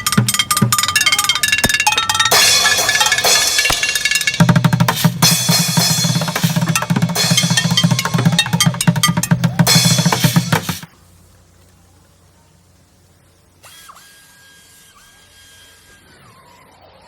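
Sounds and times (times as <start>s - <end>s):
fast dense drumming: 0.0s - 10.9s
faint low hum: 0.0s - 17.0s.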